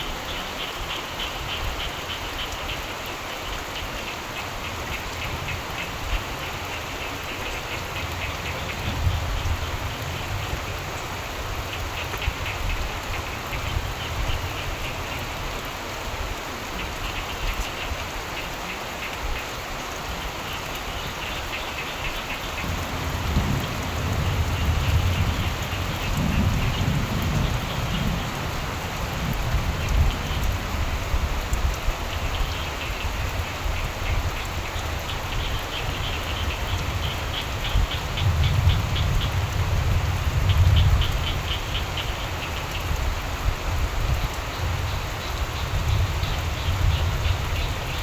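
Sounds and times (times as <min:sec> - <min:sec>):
frogs croaking: 0:00.0 - 0:48.0
steady rainfall: 0:00.0 - 0:48.0
distant thunder rumble: 0:22.4 - 0:31.3.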